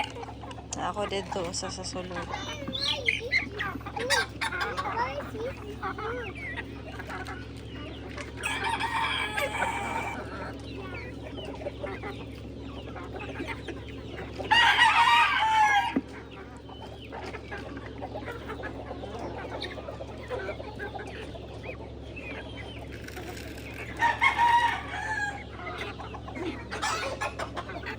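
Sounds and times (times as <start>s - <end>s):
chickens clucking: 0.0s - 27.9s
rooster crowing: 8.4s - 10.3s, 14.5s - 16.0s, 24.0s - 25.5s.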